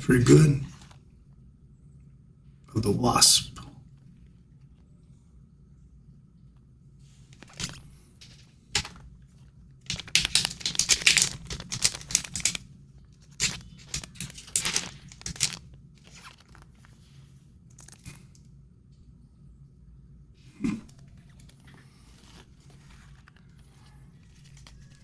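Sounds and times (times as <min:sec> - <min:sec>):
cards rustling: 0:00.1 - 0:01.0, 0:07.4 - 0:09.1, 0:09.9 - 0:12.6, 0:13.2 - 0:18.3, 0:21.2 - 0:25.0
foil wrapper tearing and crinkling: 0:09.9 - 0:12.6, 0:13.3 - 0:16.9.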